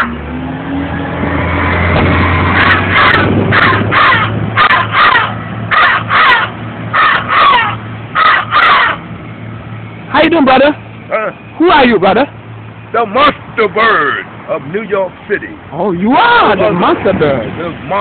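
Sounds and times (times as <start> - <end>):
street traffic hum: 0.0 - 18.0
vehicle passing: 0.0 - 18.0
man imitating crow caws: 2.6 - 9.0.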